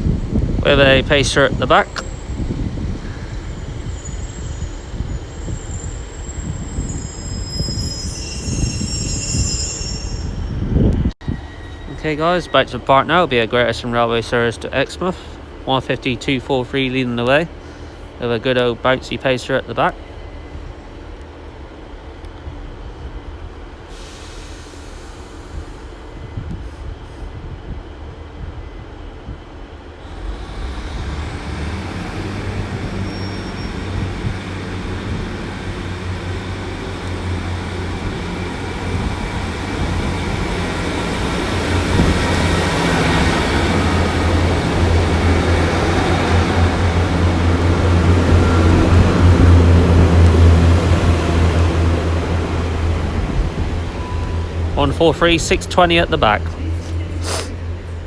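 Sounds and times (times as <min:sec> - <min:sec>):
high whine from wheels: 0:00.0 - 0:13.4, 0:30.0 - 0:58.0
diesel train engine rumble: 0:00.0 - 0:58.0.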